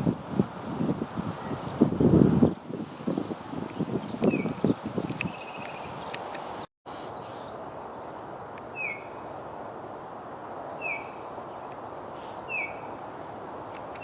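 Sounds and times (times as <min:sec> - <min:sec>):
outdoor background noise: 0:00.0 - 0:14.0
songbird calling: 0:02.4 - 0:09.2, 0:10.8 - 0:13.3.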